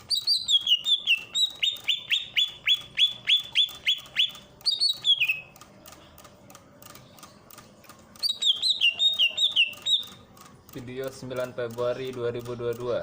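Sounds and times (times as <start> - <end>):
bird singing whistled notes: 0.0 - 5.5, 8.2 - 10.1.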